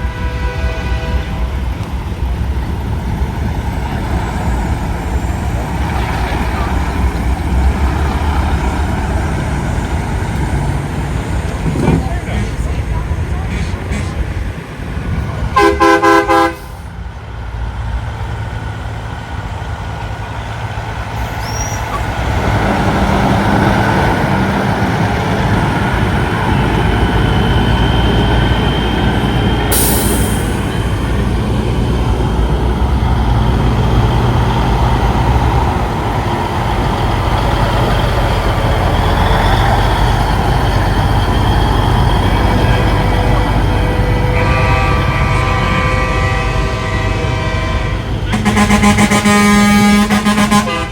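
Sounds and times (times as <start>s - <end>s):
truck horn blast: 0.0s - 1.7s, 15.5s - 16.9s, 42.5s - 50.9s
diesel truck engines rumbling: 0.0s - 50.9s.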